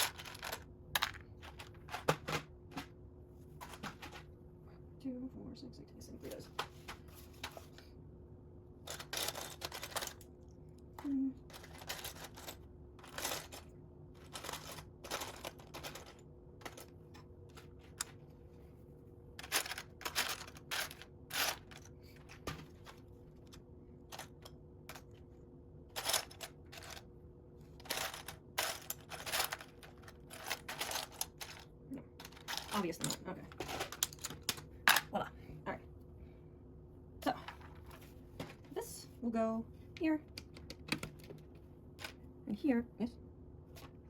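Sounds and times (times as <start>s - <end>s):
plastic bricks clicking and clattering: 0.0s - 2.5s, 8.9s - 10.3s, 11.5s - 16.9s, 19.4s - 22.4s, 25.9s - 27.0s, 27.8s - 35.1s
faint steady hum: 0.0s - 44.0s.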